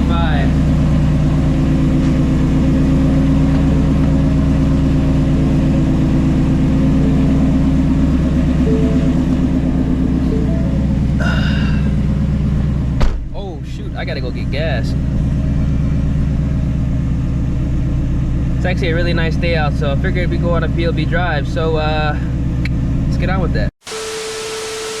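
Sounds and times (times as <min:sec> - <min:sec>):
car engine idling loudly: 0:00.0 - 0:25.0
brief higher-pitched sound: 0:06.8 - 0:11.5.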